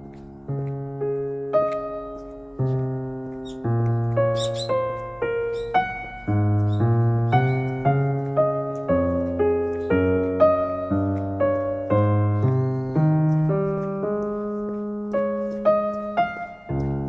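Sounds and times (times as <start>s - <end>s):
slow piano music: 0.0s - 17.0s
faint bird chirps: 3.4s - 7.8s, 12.0s - 13.5s.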